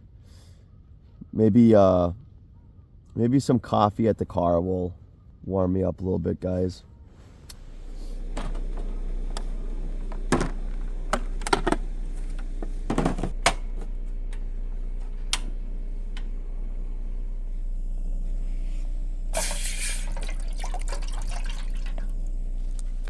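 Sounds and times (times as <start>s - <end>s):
steady low hum: 6.8s - 23.0s.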